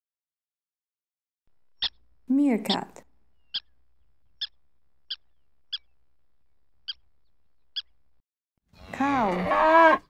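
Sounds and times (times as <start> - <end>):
meerkat chirping: 2.6 - 3.8, 4.4 - 6.0, 6.8 - 7.1.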